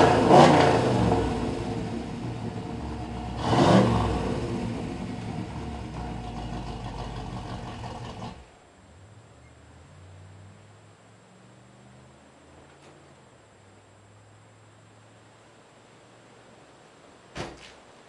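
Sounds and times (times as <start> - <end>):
car engine revving and idling: 0.0 - 12.8.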